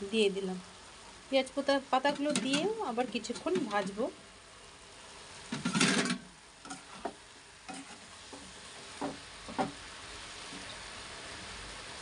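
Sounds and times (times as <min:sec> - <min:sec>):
vegetables sizzling in a pan: 0:00.0 - 0:12.0
utensil knocking against pan: 0:09.0 - 0:09.8.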